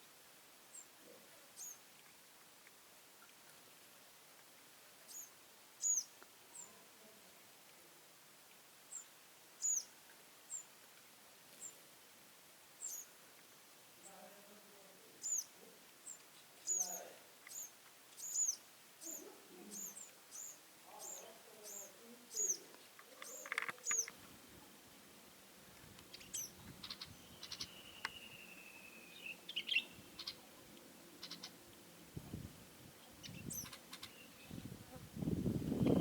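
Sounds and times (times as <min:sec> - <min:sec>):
small birds chirping: 0:00.7 - 0:01.9, 0:05.0 - 0:06.8, 0:08.9 - 0:10.7, 0:12.8 - 0:13.2, 0:14.0 - 0:24.2, 0:26.0 - 0:31.8, 0:33.0 - 0:34.7
bird whistle: 0:26.9 - 0:29.9.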